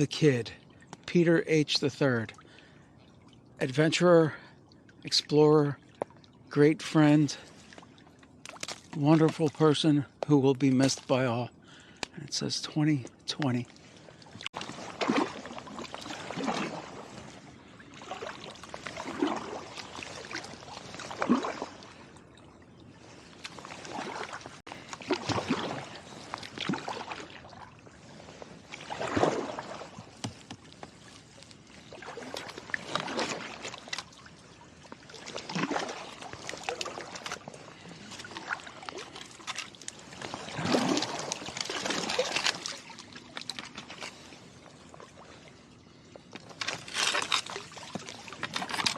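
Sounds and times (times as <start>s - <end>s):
water trickling off paddle: 13.1s - 48.9s
kayak paddle splashing: 13.4s - 48.9s.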